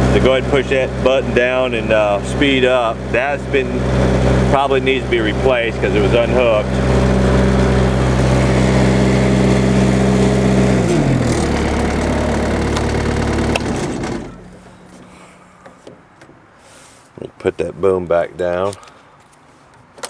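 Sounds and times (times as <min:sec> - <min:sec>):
diesel engine running: 0:00.0 - 0:15.9.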